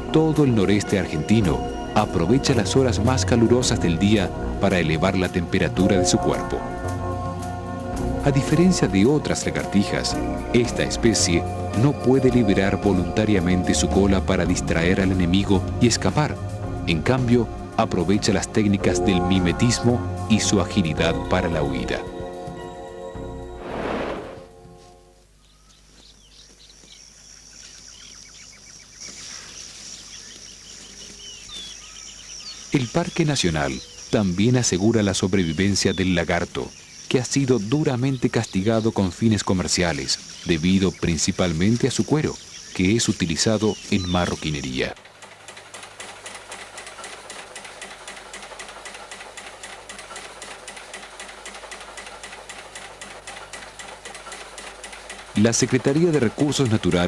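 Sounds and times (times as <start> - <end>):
high-pitched insect hum: 25.4 - 44.5.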